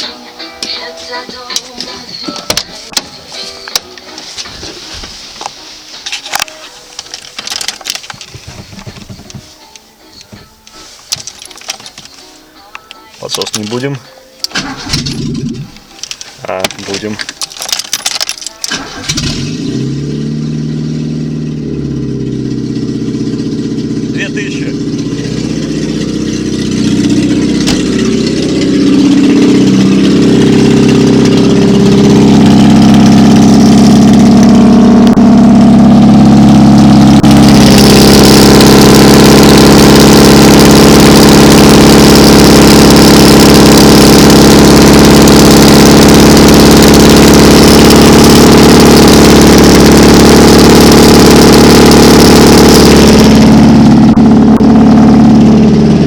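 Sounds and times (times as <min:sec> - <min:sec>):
car engine revving without muffler: 0:14.6 - 0:15.8, 0:18.7 - 0:56.0.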